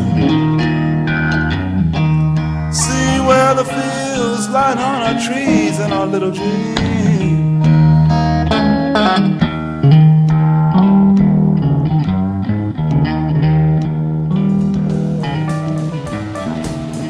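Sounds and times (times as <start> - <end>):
electric guitar lead: 0.0 - 17.0
steady bass: 0.0 - 17.0.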